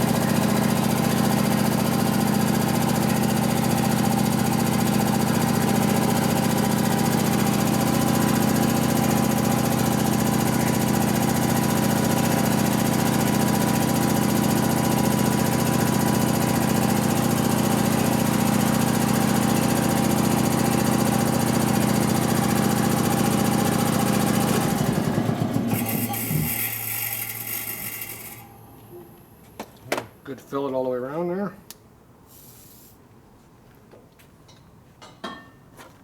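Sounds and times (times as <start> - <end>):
mechanical drone with low hum: 25.2 - 29.5.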